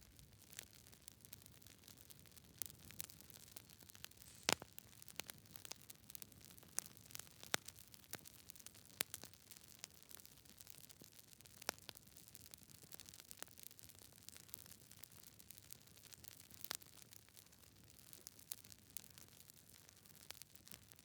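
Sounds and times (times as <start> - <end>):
campfire crackling: 0.0 - 20.8
faint steady hiss: 1.8 - 5.1.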